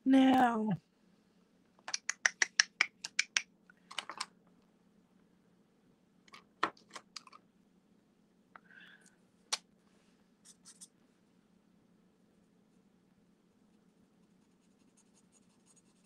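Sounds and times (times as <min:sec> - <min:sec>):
marker caps clicking on desk: 0:01.9 - 0:04.3.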